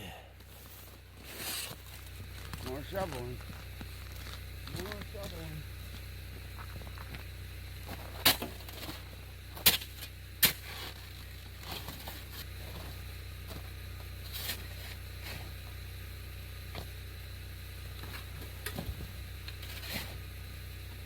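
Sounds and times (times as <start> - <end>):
shovel scraping snow: 0.5 - 3.4, 7.8 - 13.0, 14.2 - 15.6, 19.5 - 20.3
snow shovel hitting snow: 7.8 - 13.0.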